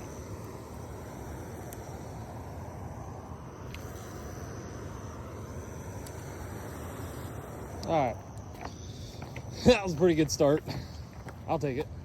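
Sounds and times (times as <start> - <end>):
high insect tone: 0.0 - 12.0
outdoor background noise: 0.0 - 12.0.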